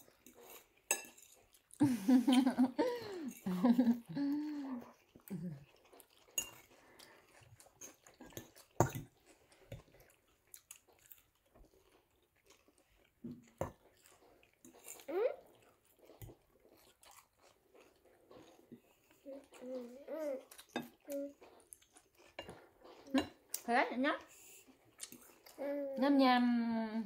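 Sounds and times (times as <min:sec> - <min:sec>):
chewing and crunching: 0:00.0 - 0:02.0, 0:02.7 - 0:25.6
cutlery clinking on dishes: 0:00.2 - 0:01.4, 0:06.3 - 0:06.8, 0:22.3 - 0:23.4.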